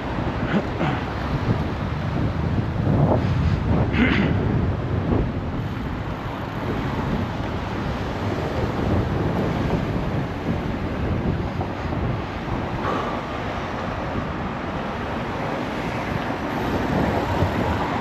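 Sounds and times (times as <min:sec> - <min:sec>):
road noise: 0:00.0 - 0:18.0
traffic noise: 0:00.0 - 0:18.0
wind buffeting microphone: 0:00.0 - 0:18.0.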